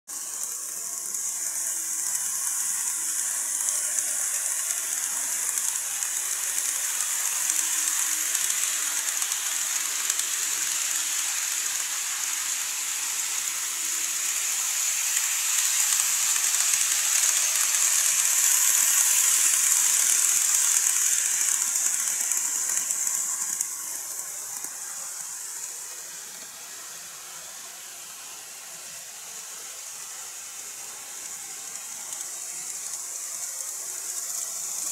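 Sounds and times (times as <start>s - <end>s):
model train running on track: 0.1s - 34.9s.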